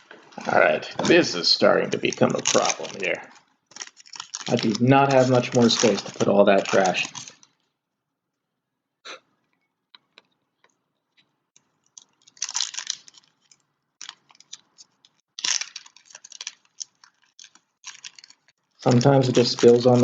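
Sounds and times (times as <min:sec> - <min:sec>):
foil wrappers crinkling: 0:00.5 - 0:07.7, 0:11.6 - 0:20.0.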